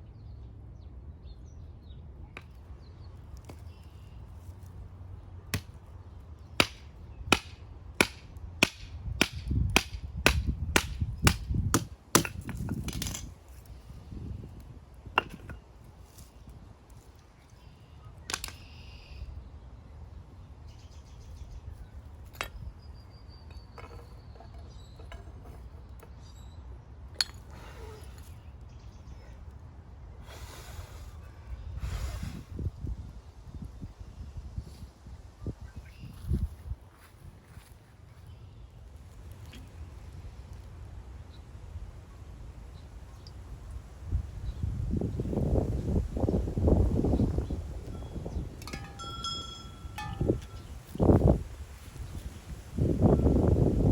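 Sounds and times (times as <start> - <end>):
sharp chopping strikes: 6.6 - 12.5.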